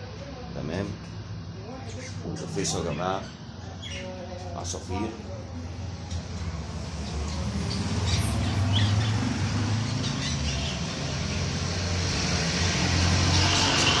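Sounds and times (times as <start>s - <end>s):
budgerigars chirping: 2.0s - 4.1s, 7.0s - 9.3s, 9.9s - 11.5s.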